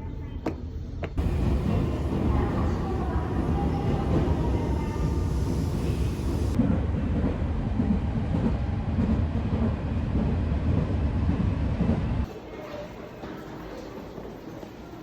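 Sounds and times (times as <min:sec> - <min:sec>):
loud low rumble: 0:01.2 - 0:06.8.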